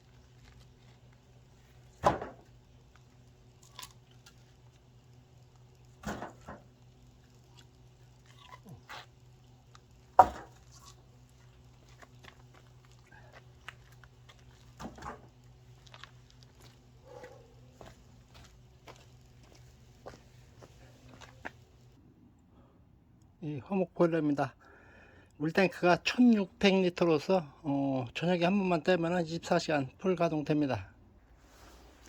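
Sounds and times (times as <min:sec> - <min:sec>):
faint low hum: 0:00.0 - 0:25.4
firewood splitting knocks: 0:01.8 - 0:02.6, 0:06.0 - 0:06.8, 0:10.1 - 0:11.0, 0:13.7 - 0:16.0.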